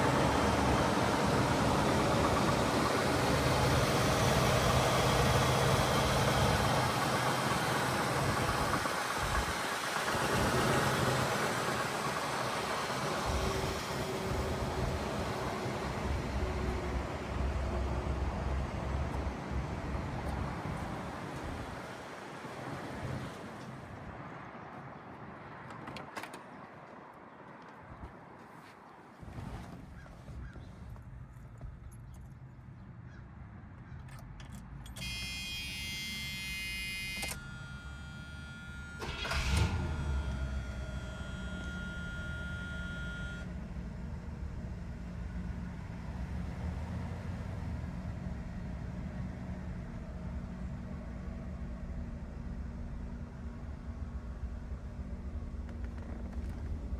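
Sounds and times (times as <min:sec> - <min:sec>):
road or wind hiss: 0:00.0 - 0:24.2
car engine low rumble: 0:00.0 - 0:25.4, 0:27.9 - 0:35.0, 0:37.4 - 0:56.9.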